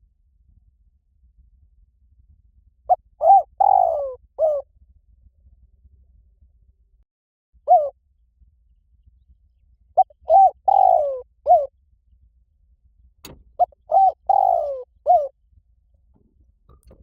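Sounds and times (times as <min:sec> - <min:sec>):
dove cooing: 0:02.9 - 0:04.6, 0:07.7 - 0:07.9, 0:10.0 - 0:11.7, 0:13.6 - 0:15.3.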